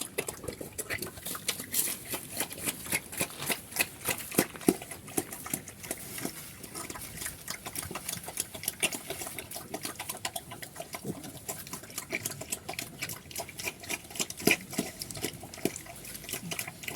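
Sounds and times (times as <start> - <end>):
pigs chewing and smacking: 0.0 - 16.9.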